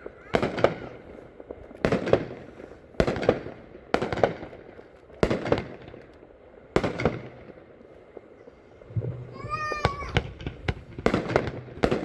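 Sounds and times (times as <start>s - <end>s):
firework double bangs: 0.0s - 1.2s, 1.8s - 4.6s, 8.8s - 12.0s.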